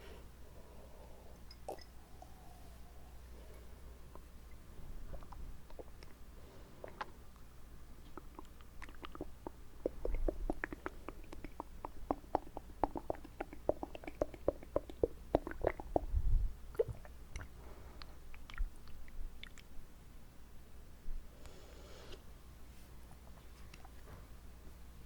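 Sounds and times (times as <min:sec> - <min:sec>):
wet mouth clicks and smacks: 0:06.8 - 0:19.7.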